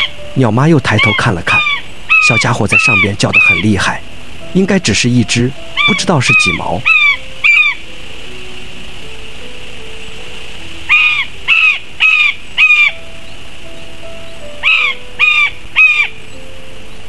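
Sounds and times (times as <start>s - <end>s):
kite calling loudly: 0.0s - 7.9s, 10.6s - 13.1s, 14.4s - 16.2s
soft background music: 0.0s - 17.0s.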